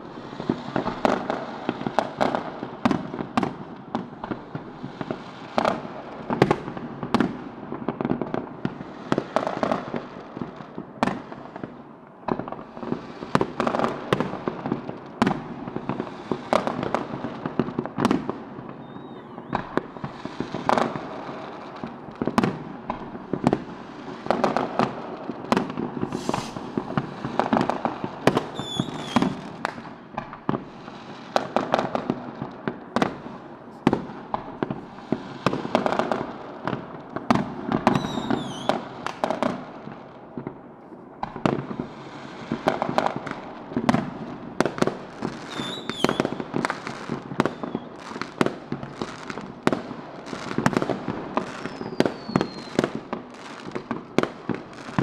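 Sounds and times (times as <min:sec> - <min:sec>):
firework crackle: 0:00.0 - 0:55.0
fireworks bangs and pops: 0:00.0 - 0:55.0
firework whistles: 0:18.7 - 0:20.7, 0:25.6 - 0:30.1, 0:37.8 - 0:39.2, 0:45.4 - 0:48.1, 0:51.4 - 0:53.0.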